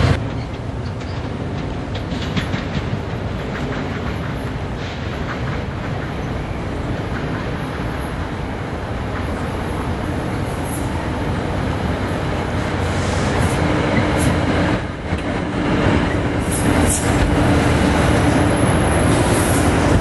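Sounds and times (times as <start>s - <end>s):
diesel train passing: 0.0s - 20.0s
wheels clicking over rail joints: 0.1s - 8.3s.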